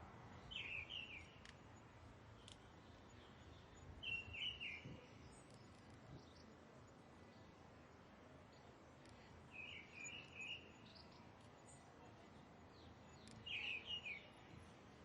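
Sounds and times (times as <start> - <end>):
faint background noise: 0.0 - 15.0
bird chirping: 0.4 - 1.4, 3.1 - 6.4, 9.5 - 11.2, 12.7 - 14.4.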